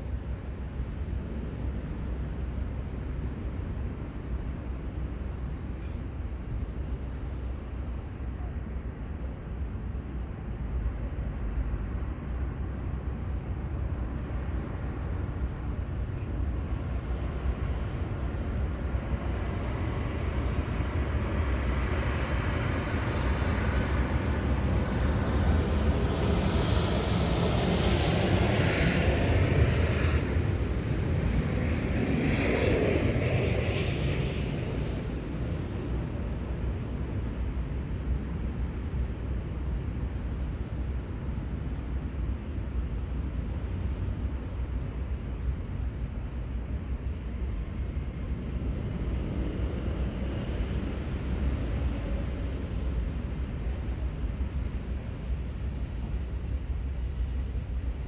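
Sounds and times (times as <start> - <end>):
passenger plane flying past: 0.0 - 58.0
steady low rumble: 15.9 - 58.0.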